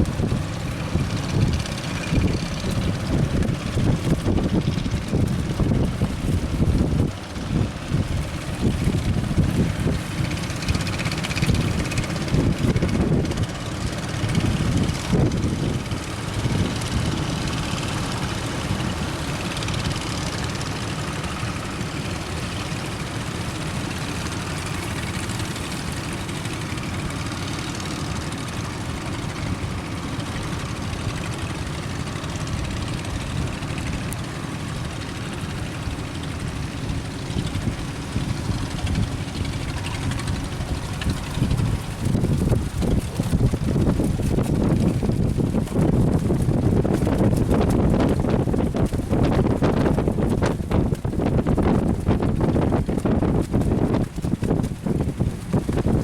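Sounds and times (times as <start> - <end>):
boat engine running: 0.0 - 56.0
wind buffeting microphone: 0.0 - 56.0.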